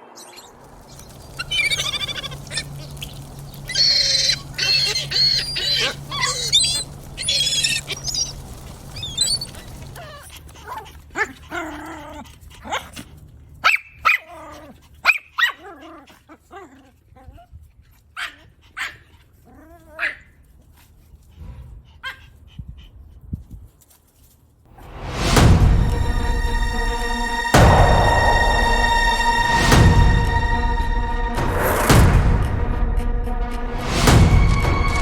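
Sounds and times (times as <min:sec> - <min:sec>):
high wavering calls: 0:00.0 - 0:10.0, 0:25.9 - 0:31.9
dog barking and whining: 0:01.4 - 0:08.4, 0:09.0 - 0:20.4.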